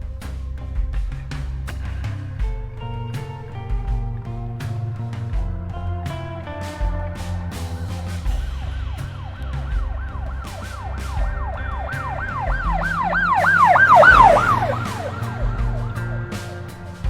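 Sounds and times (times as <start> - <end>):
background music with a beat: 2.4 - 17.0
police siren yelping: 9.0 - 16.6.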